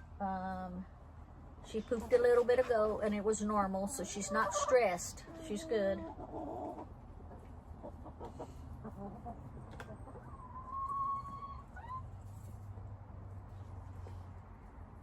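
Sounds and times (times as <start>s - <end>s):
chickens clucking softly: 3.9s - 12.9s.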